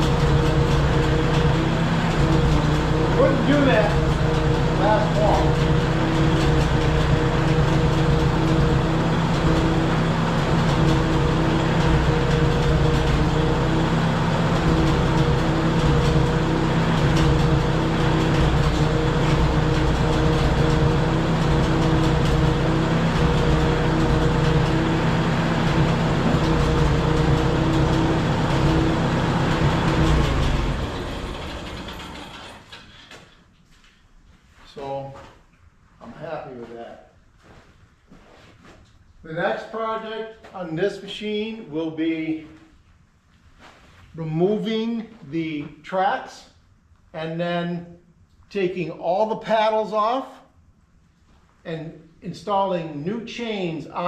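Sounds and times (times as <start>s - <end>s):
bulldozer engine running: 0.0s - 33.4s.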